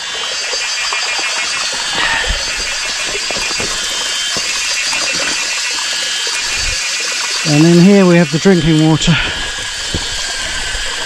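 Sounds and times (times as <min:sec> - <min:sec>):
water trickling over rocks: 0:00.0 - 0:11.0
container knocks: 0:01.8 - 0:05.7.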